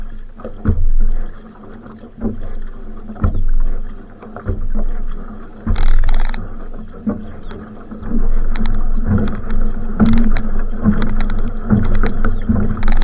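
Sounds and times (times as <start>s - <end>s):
paddle strokes splashing water: 0.0s - 13.0s
sharp water splash: 0.0s - 13.0s.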